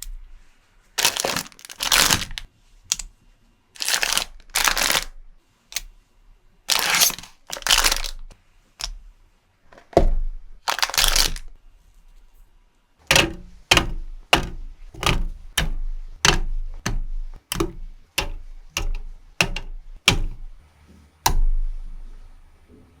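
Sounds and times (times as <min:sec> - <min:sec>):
packaging rustling: 0:01.0 - 0:02.5, 0:03.8 - 0:05.2, 0:06.7 - 0:08.3, 0:09.7 - 0:11.6
sharp plastic clicks: 0:13.1 - 0:20.6.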